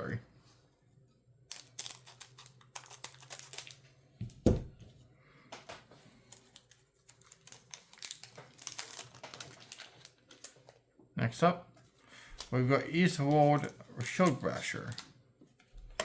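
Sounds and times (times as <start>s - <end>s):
cards clicking and rustling: 1.5s - 3.8s, 5.5s - 10.8s
dull thump on table: 4.4s - 4.7s.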